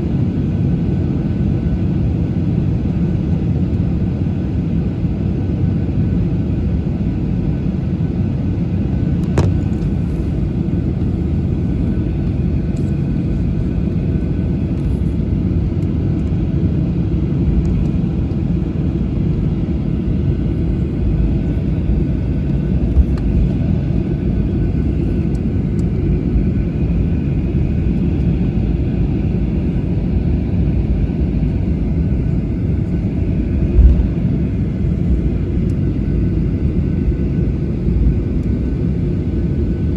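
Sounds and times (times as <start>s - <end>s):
low rumble of idling engines: 9.0s - 37.2s
thump: 33.8s - 34.2s.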